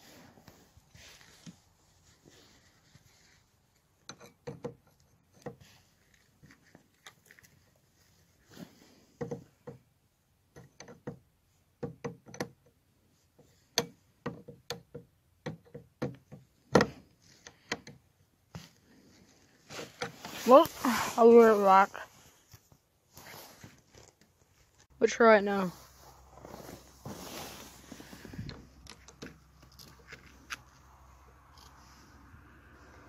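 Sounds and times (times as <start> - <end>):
hand tools clicking and knocking: 4.0 - 5.7, 10.5 - 12.8, 13.4 - 18.1, 28.4 - 30.7.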